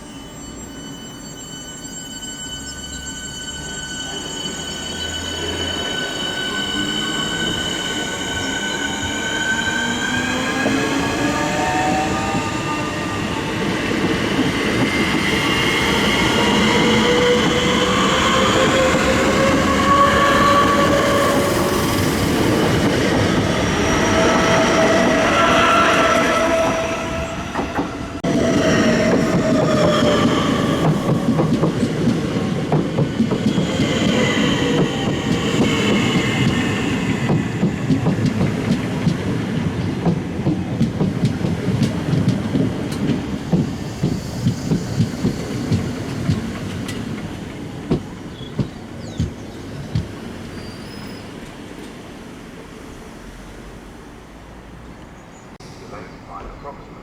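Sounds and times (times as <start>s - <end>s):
train wheels rumbling on rail: 3.3s - 57.0s.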